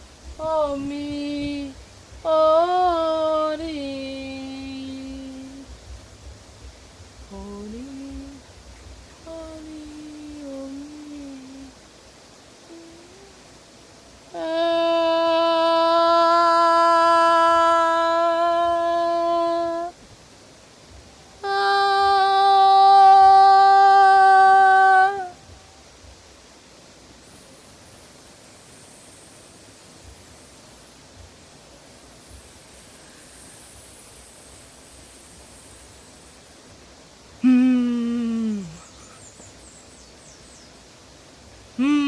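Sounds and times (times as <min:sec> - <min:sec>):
faint room noise: 0:00.0 - 0:42.0
woman holding long vocal notes: 0:00.4 - 0:05.8, 0:07.2 - 0:08.5, 0:09.2 - 0:11.8, 0:12.6 - 0:20.0, 0:21.4 - 0:25.9, 0:37.4 - 0:39.3, 0:41.8 - 0:42.0.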